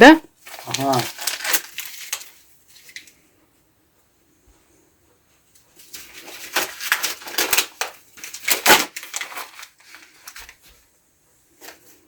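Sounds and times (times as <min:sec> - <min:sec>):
kindling crunching and crackling: 0:00.4 - 0:03.2, 0:05.8 - 0:10.6.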